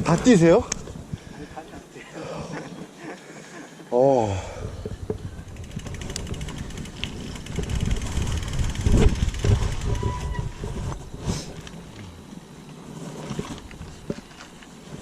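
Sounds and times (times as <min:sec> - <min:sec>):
bike rattling and knocking: 0:00.0 - 0:01.0, 0:04.5 - 0:12.3
wind buffeting microphone: 0:00.0 - 0:01.9, 0:04.4 - 0:12.2.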